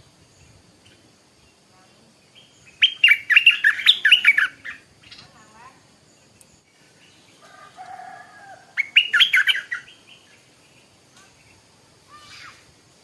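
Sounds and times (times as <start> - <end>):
bird singing: 0.2 - 12.6.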